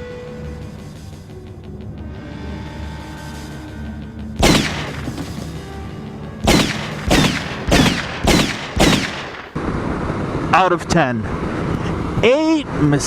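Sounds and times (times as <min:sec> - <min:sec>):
film score: 0:00.0 - 0:09.6
wind and road noise: 0:04.3 - 0:13.0
gunshots ringing out: 0:04.4 - 0:05.4, 0:06.4 - 0:09.6.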